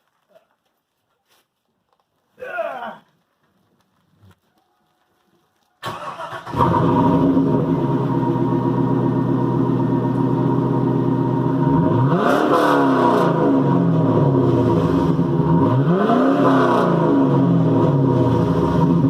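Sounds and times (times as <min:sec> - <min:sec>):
car engine idling and revving: 0:05.9 - 0:19.0.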